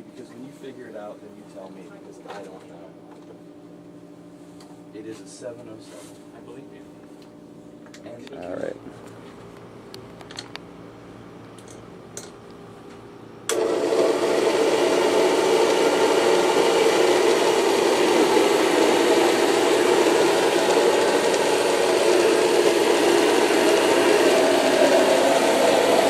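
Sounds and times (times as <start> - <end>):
vacuum cleaner motor running: 13.5 - 26.0.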